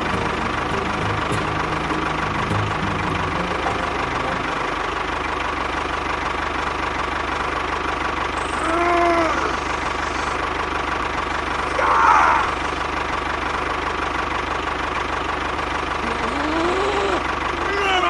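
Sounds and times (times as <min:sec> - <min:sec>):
small motor knocking: 0:08.2 - 0:13.2.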